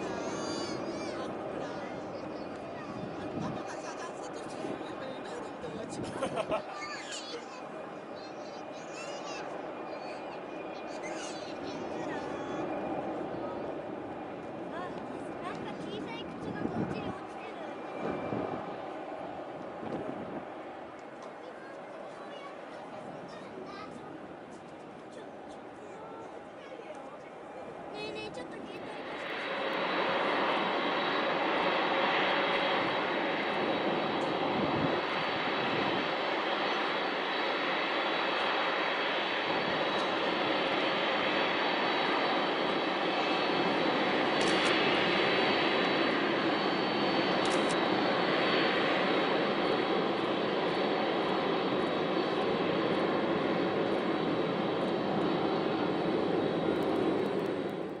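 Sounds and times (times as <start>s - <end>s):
faint high whine: 0.0s - 58.0s
jet engines roaring: 0.0s - 58.0s.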